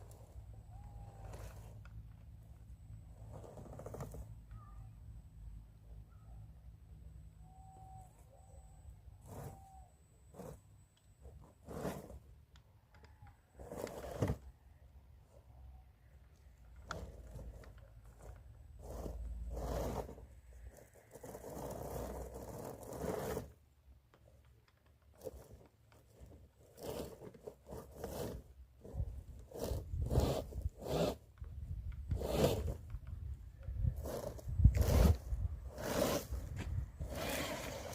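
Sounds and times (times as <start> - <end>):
toy car tyres crunching on stones: 24.2 - 37.9.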